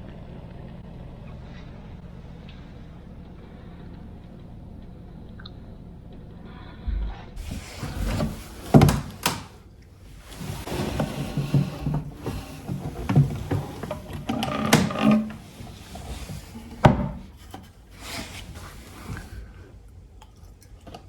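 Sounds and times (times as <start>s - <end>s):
objects rustling and clattering: 7.4s - 19.5s.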